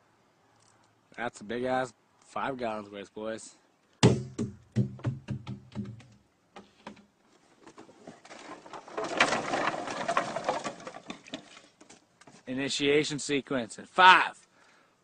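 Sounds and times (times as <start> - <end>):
fuel splashing onto wood: 8.2 - 12.0.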